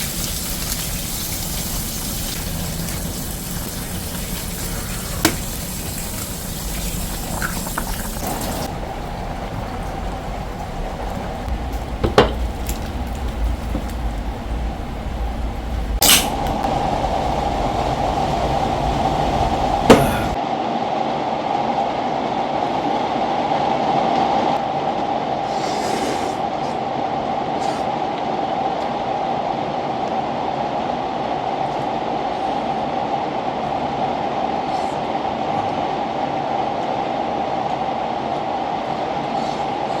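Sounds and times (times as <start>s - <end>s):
fish sizzling in hot oil: 0.0s - 8.7s
oil crackling: 0.0s - 20.4s.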